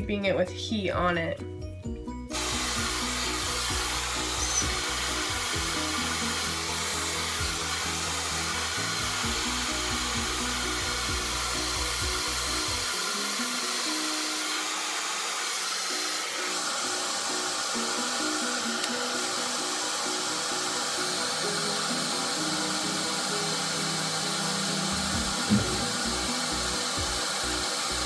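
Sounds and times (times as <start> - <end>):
background music with bass line: 1.0 - 12.9, 24.9 - 27.2
hair dryer blowing: 2.3 - 28.0.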